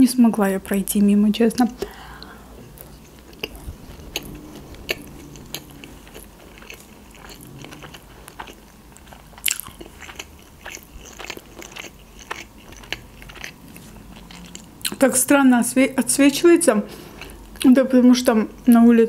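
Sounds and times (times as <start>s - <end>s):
person chewing food: 1.8s - 15.1s, 16.9s - 17.7s.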